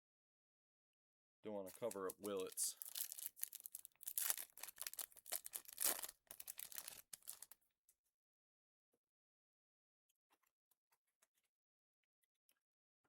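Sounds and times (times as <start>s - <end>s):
cards and wrapper rustling: 1.5s - 7.6s.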